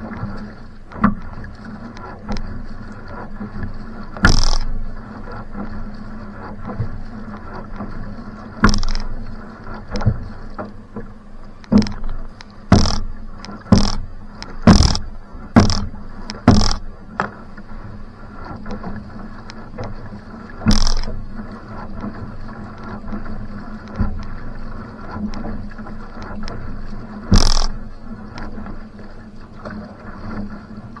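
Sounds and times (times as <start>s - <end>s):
paddle splashing in water: 0.0s - 31.0s
steady rushing noise: 13.7s - 15.8s.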